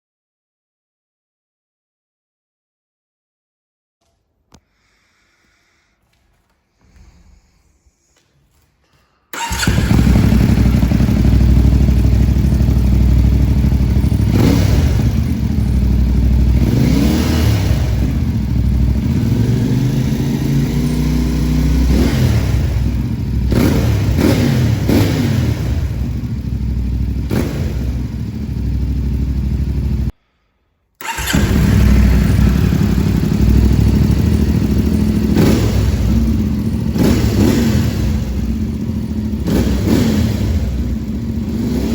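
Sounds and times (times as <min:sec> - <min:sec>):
motorcycle engine revving: 0:09.4 - 0:30.1, 0:31.0 - 0:41.9.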